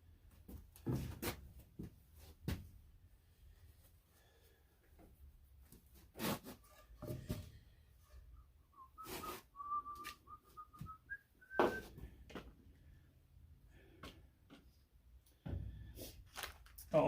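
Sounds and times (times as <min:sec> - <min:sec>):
person whistling a tune: 0:08.6 - 0:11.9.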